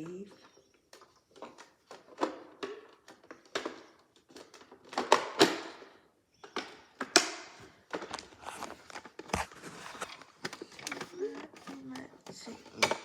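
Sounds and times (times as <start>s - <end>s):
plastic toy clicks and knocks: 0.8s - 9.4s
plastic scrapes: 7.6s - 13.0s.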